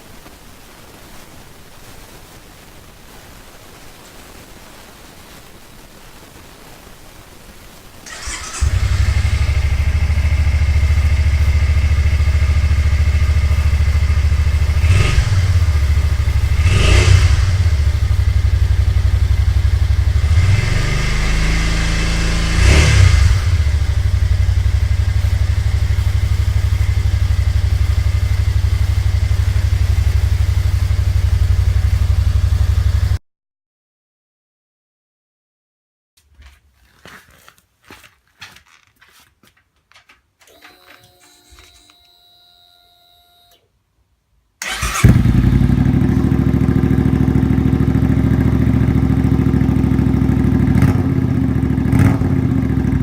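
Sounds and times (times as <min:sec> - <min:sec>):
motorcycle engine idling and revving: 0:08.1 - 0:33.2, 0:44.6 - 0:53.0.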